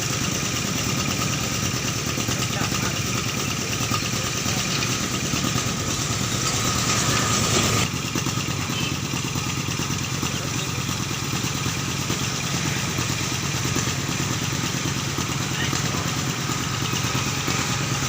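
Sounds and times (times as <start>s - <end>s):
motorcycle engine idling: 0.0s - 18.0s
loud hiss: 4.3s - 7.8s.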